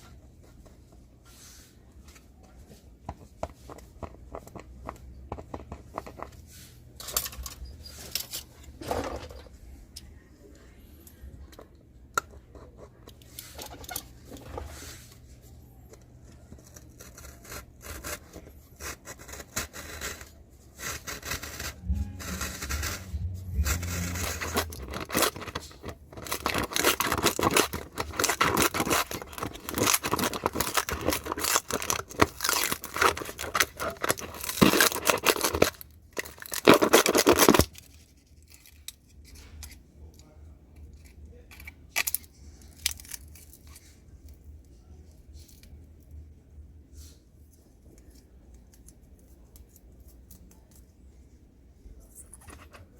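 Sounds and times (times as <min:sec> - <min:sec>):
speaker dust cap being torn: 0:24.2 - 0:37.7.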